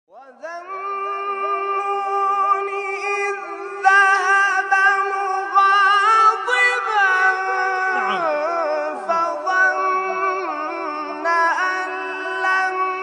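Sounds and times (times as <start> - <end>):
person singing high held notes: 7.8 - 8.4.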